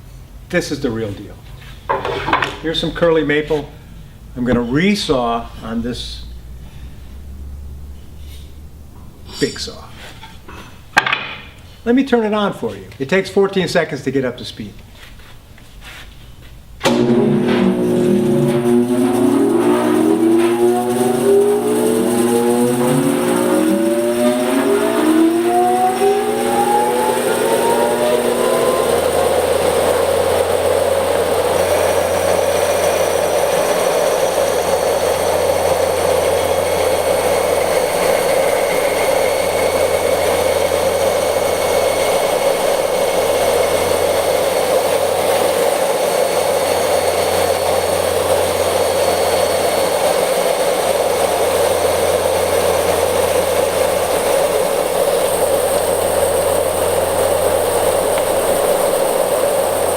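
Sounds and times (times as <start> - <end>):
bandsaw whining: 16.8 - 59.9.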